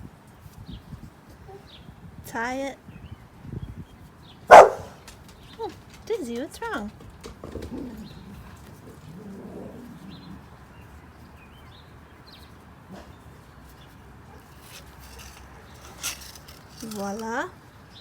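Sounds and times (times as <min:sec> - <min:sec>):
dog whining: 0:07.4 - 0:10.4.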